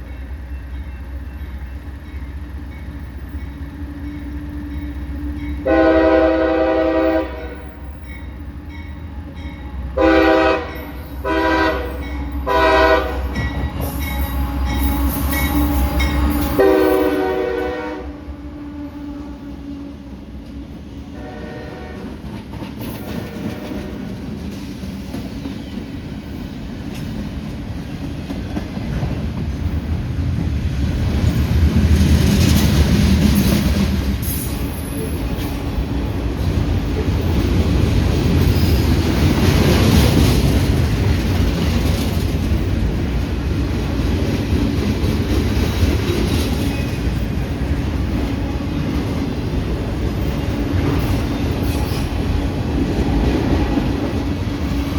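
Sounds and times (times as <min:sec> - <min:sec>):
diesel freight train rumbling: 0:00.0 - 0:54.9
train horn blast: 0:05.6 - 0:07.9, 0:09.9 - 0:20.3, 0:21.0 - 0:22.3, 0:23.0 - 0:24.2
train wheels clattering over rail joints: 0:22.0 - 0:54.9.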